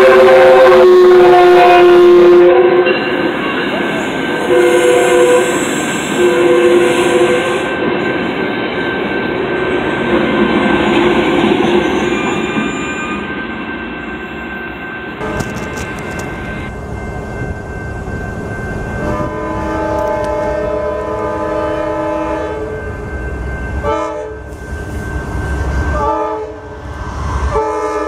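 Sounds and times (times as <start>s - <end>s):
train horn blasts: 0.0s - 3.8s, 4.4s - 7.9s, 19.0s - 23.0s, 23.8s - 24.6s, 25.9s - 26.8s, 27.4s - 28.0s
train rumble and wheel clatter: 0.0s - 28.0s.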